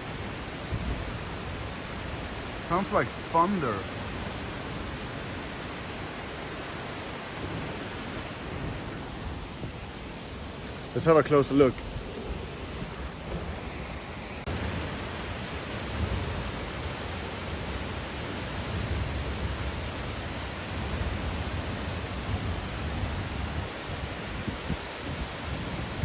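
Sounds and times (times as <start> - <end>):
waterfall rushing: 0.0 - 14.5.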